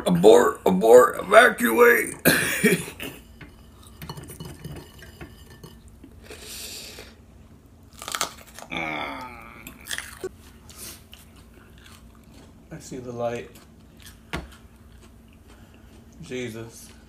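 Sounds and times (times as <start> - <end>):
person groaning: 8.7 - 9.9
chewing noodles: 9.6 - 12.7, 13.5 - 17.0.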